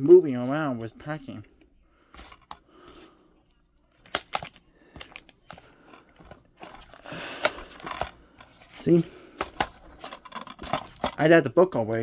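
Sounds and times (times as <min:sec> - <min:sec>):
packaging rustling: 0:03.9 - 0:11.3.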